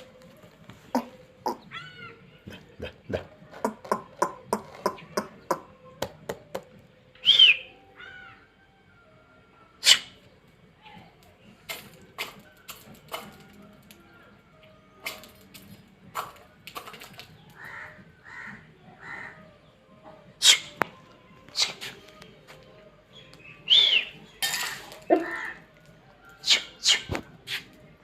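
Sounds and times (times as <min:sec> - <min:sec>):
bird chirps: 0:07.2 - 0:08.4, 0:23.1 - 0:24.4.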